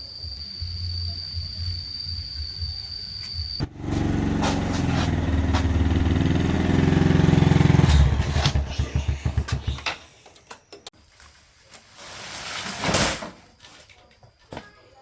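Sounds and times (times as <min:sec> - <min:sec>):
small engine running: 0:03.6 - 0:09.8.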